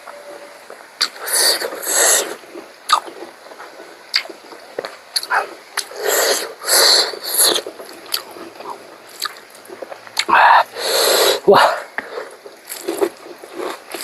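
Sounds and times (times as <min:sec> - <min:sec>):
breathy bursts of air: 0:05.9 - 0:07.5, 0:10.6 - 0:12.3.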